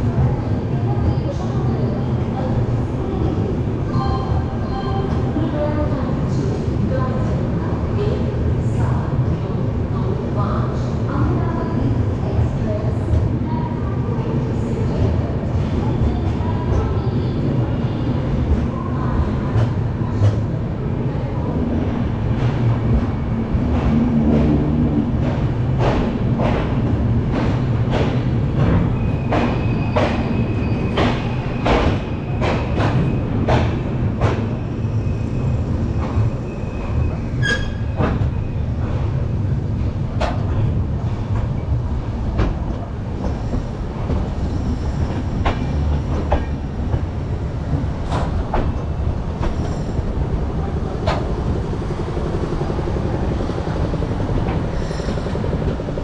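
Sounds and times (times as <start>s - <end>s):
train coaches rumbling: 0.0s - 56.0s
high wheel squeal: 36.4s - 38.6s, 54.7s - 55.4s.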